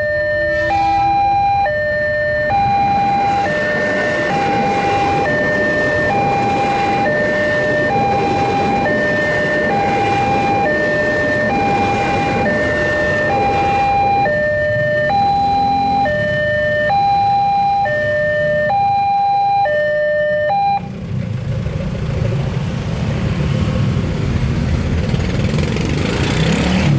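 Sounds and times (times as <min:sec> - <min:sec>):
level crossing alarm two-tone: 0:00.0 - 0:20.9
road vehicle engines running: 0:00.0 - 0:26.9.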